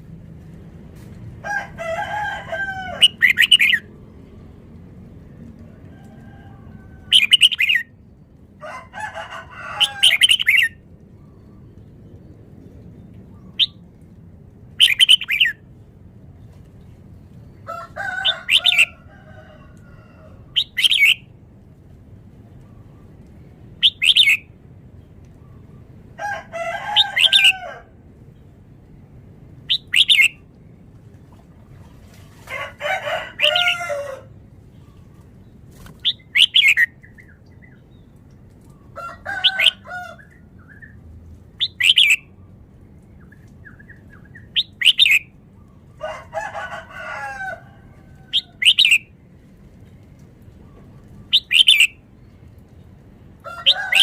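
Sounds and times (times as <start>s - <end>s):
bird singing bright phrases: 7.1s - 7.9s, 23.8s - 24.5s, 29.7s - 30.4s, 35.9s - 38.2s, 41.6s - 42.3s, 43.1s - 45.8s, 51.2s - 52.4s.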